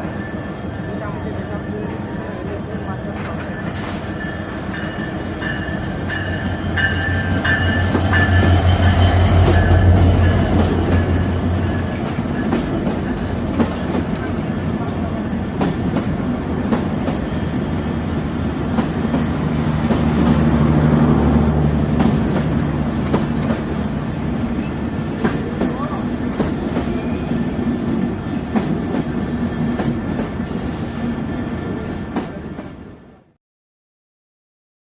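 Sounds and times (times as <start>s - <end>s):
diesel locomotive engine running: 3.7s - 32.4s
train wheels clicking over rail joints: 7.2s - 14.6s, 18.7s - 27.0s.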